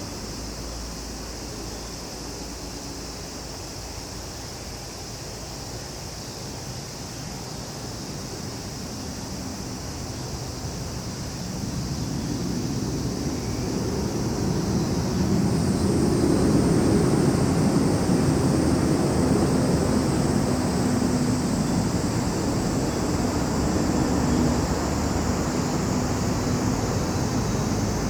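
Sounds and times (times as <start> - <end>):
insects chirping: 0.0 - 28.0
low engine rumble: 12.4 - 28.0.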